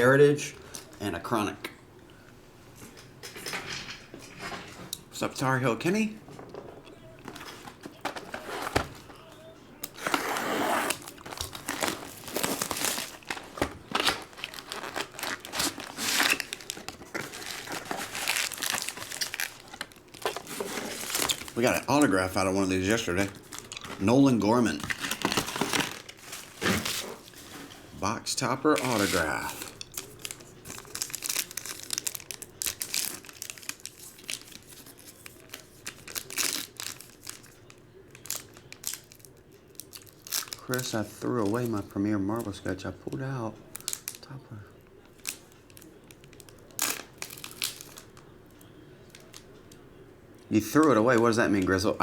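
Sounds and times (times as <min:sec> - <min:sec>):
wrappers tearing and crinkling: 0:09.8 - 0:27.8, 0:28.7 - 0:40.9, 0:45.2 - 0:49.5.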